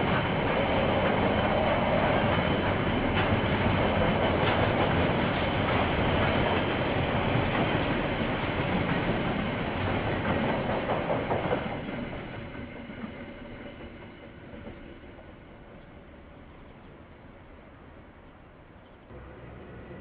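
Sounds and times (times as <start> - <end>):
train wheels clattering over joints: 0.0 - 16.0.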